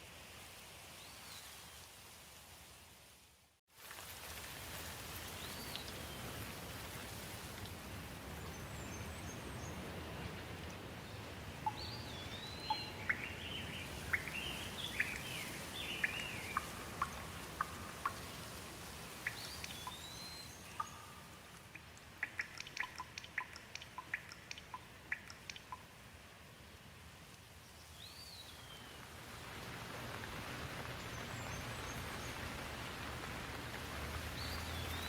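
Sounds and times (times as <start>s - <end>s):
rain: 0.0s - 35.0s
water dripping: 4.2s - 6.6s, 11.6s - 26.0s, 29.6s - 35.0s.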